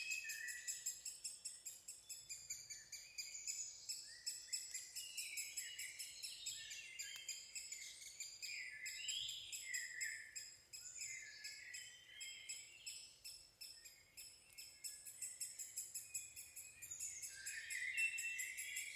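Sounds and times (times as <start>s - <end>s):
high ticking bird chips: 12.9s - 18.9s.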